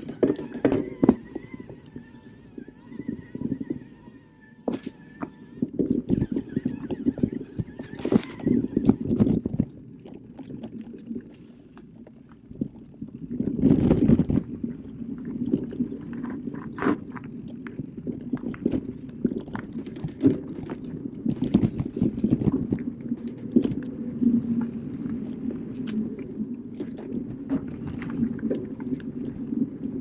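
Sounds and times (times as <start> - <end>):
bike clicks and rattles: 0.0 - 2.2
bike tyres rumbling on trail: 12.4 - 30.0.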